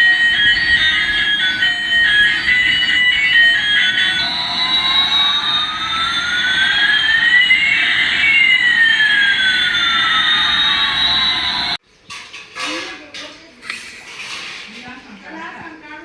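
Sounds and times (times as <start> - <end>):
gliding electronic tones: 0.0 - 11.8
toy beeping tune: 0.0 - 11.8.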